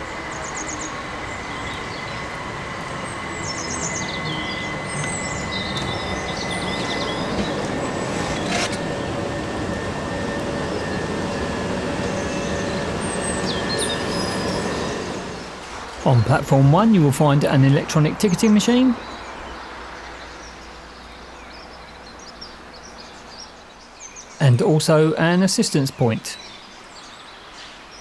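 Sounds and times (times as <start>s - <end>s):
electric train rumble and whine: 0.0s - 21.0s
birds chirping: 0.0s - 28.0s.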